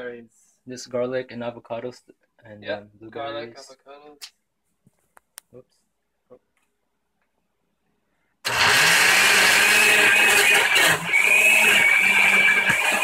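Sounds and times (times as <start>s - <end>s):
kitchen blender whining: 8.4s - 13.0s.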